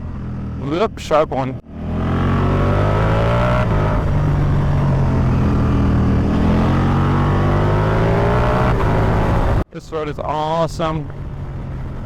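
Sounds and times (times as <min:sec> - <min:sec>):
motorcycle engine accelerating: 0:00.0 - 0:09.6
wind rush: 0:03.4 - 0:09.6.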